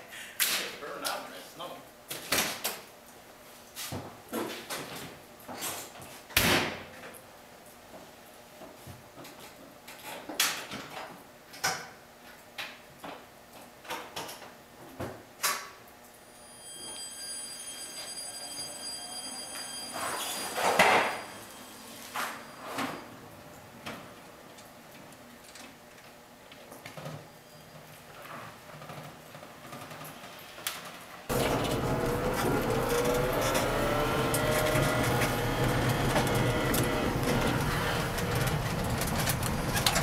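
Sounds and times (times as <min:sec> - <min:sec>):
faint high whine: 0:16.2 - 0:23.5
car panels clunking: 0:31.3 - 0:40.0
doors shut and latched: 0:31.3 - 0:40.0.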